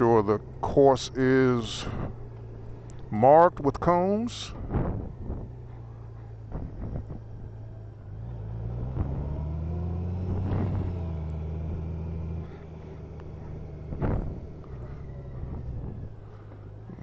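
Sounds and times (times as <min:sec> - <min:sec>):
motorcycle engine accelerating: 0:04.5 - 0:17.0.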